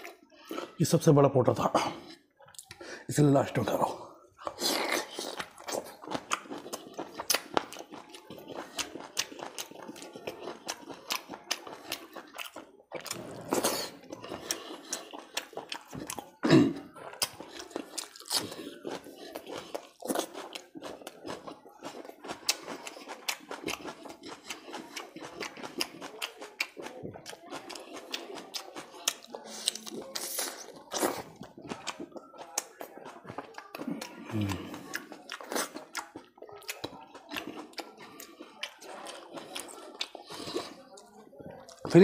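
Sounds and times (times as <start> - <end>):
chewing and crunching food: 0.0 - 1.1, 1.7 - 42.0
wet mouth clicks and smacks: 2.4 - 2.8, 4.4 - 11.8.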